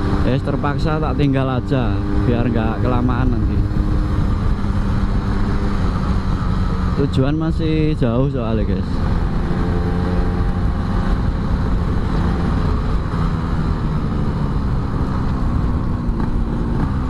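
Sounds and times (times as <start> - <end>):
road and wind noise: 0.0 - 17.0
two-stroke motorcycle engine running: 0.0 - 17.0.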